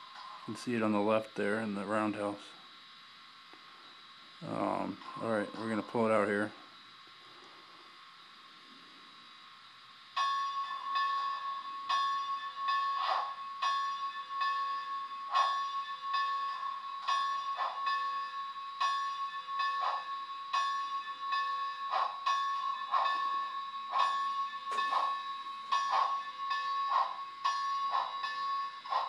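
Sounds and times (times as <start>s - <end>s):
ringing bell: 10.2s - 29.0s.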